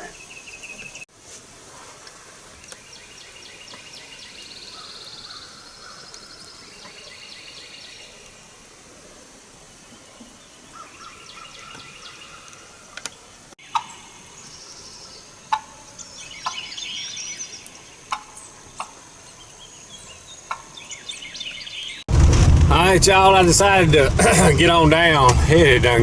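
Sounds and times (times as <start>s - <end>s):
small birds chirping faintly: 0.0s - 1.1s, 2.0s - 22.1s
rain hiss: 0.1s - 20.4s, 22.1s - 26.0s
turkeys calling: 10.7s - 14.2s, 15.1s - 19.1s, 20.1s - 22.0s.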